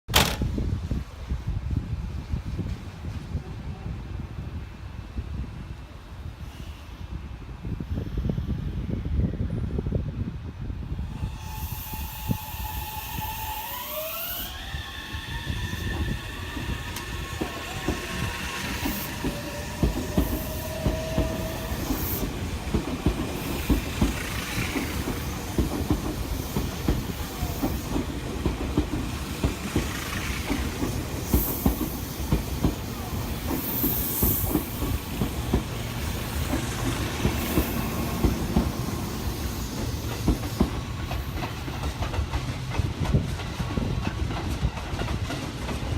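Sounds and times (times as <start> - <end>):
electric train motor whine: 11.2 - 22.0
train wheels clacking over rail joints: 14.6 - 45.9.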